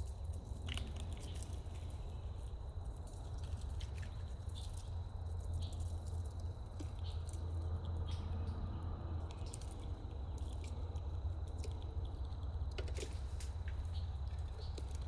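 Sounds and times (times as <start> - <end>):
small animal chewing: 9.3 - 15.0.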